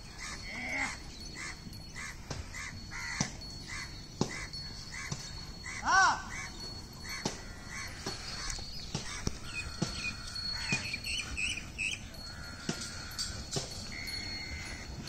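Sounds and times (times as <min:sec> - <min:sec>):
small birds chirping: 0:00.0 - 0:15.0
faint steady high tone: 0:09.5 - 0:15.0.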